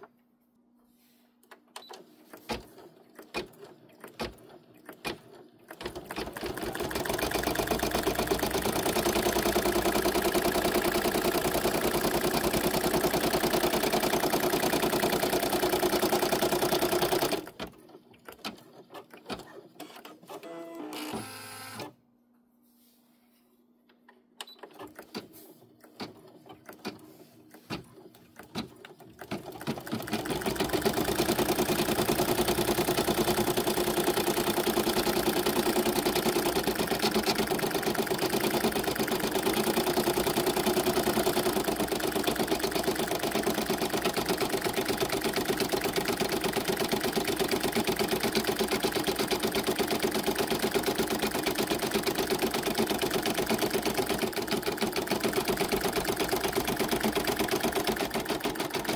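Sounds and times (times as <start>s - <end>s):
embroidery machine stitching: 1.9s - 21.9s, 27.8s - 58.9s.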